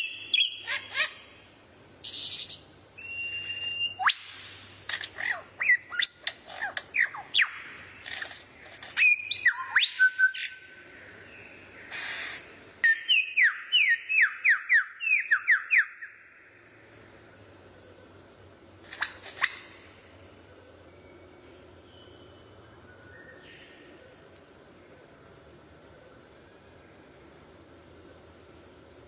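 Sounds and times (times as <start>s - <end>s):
songbird whistling: 0.0s - 1.2s, 2.0s - 4.6s, 5.2s - 7.7s, 8.4s - 10.7s, 12.0s - 16.3s, 18.9s - 19.9s.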